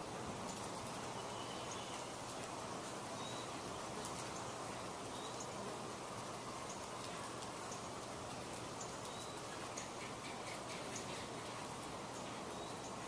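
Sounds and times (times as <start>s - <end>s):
light ticks: 0.4s - 3.4s, 4.0s - 13.0s.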